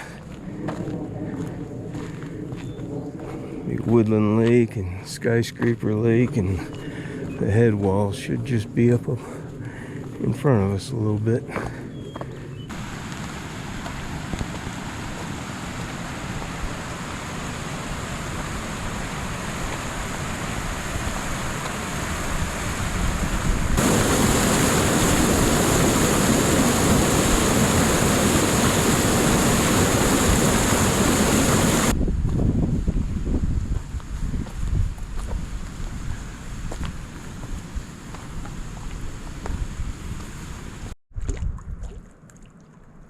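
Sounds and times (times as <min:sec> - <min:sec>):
flowing mountain water: 0:12.7 - 0:31.9.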